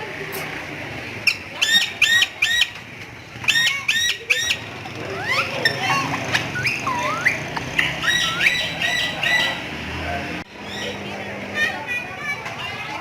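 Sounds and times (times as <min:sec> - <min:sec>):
parrot squawking: 0:01.2 - 0:02.8, 0:03.5 - 0:09.8, 0:10.6 - 0:11.1
gliding whistles and chirps: 0:06.4 - 0:09.7.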